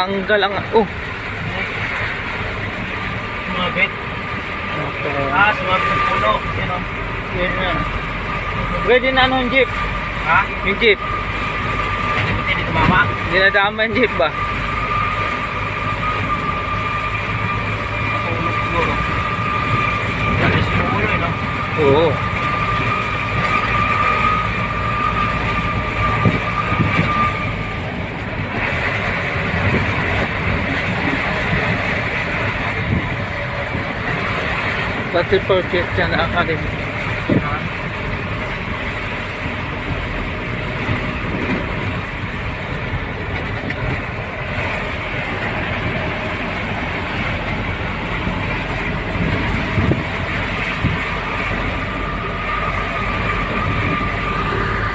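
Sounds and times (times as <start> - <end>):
high steady whine: 0.0 - 54.9
truck engine and road noise: 0.0 - 54.9.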